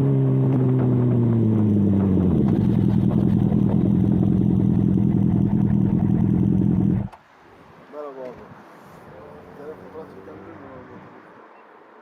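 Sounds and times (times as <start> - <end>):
motorcycle engine: 0.0 - 7.2.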